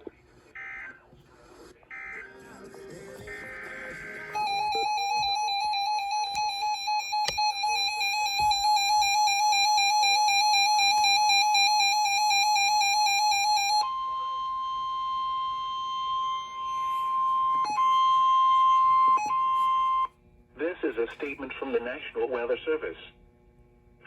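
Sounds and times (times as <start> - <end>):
steady alert tone: 3.3 - 9.7.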